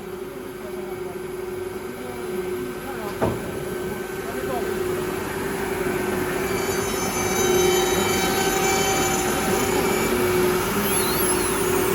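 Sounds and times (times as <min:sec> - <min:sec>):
wood router hum: 0:05.2 - 0:11.9
high whining tones: 0:06.2 - 0:11.9.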